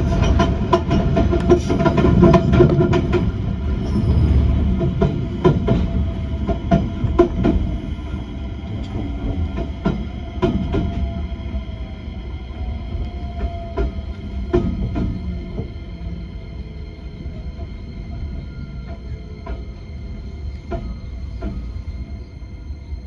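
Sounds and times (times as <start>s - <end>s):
train wheels clicking over rail joints: 0.0s - 8.2s
train running rumble: 0.0s - 23.0s.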